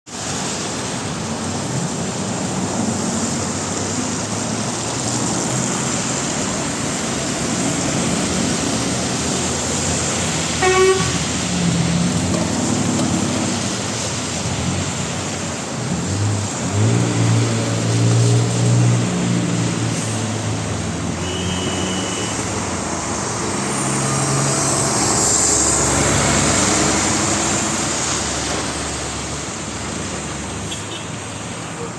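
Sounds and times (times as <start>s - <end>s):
cars passing: 0.1s - 31.9s
tyre and road noise: 0.1s - 31.9s
truck engine hum: 1.7s - 30.5s.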